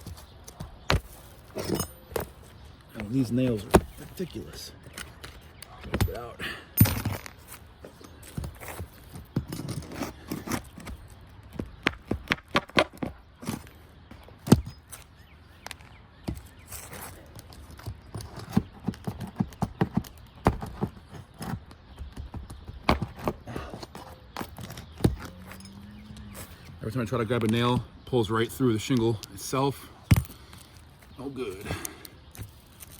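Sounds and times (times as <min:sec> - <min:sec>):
nail-removal tool scraping shingles: 0:07.0 - 0:13.7.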